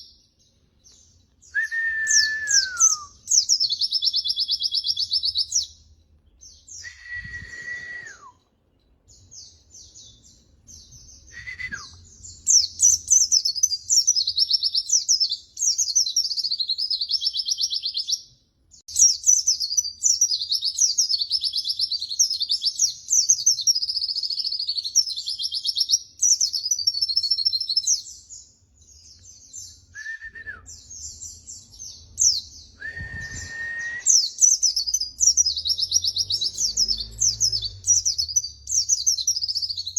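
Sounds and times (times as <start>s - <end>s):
low whistles dropping in pitch: 1.5s - 3.2s, 6.7s - 8.5s, 11.3s - 12.0s, 30.0s - 30.8s, 32.8s - 34.4s
white-eye twittering song: 30.7s - 39.9s.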